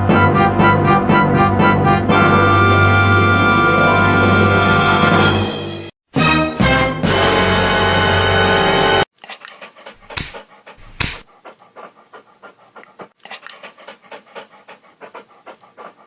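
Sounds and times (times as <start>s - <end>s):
music: 0.0s - 9.1s
dog panting: 9.2s - 16.0s.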